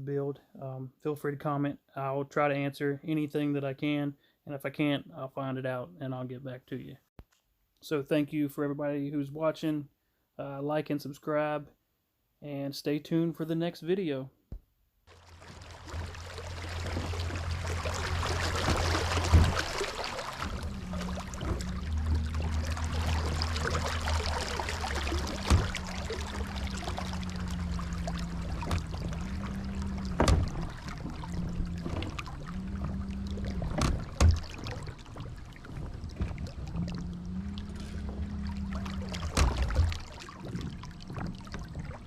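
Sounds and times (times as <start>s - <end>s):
water rushing along hull: 15.1s - 42.0s
knocks against hull: 15.2s - 42.0s.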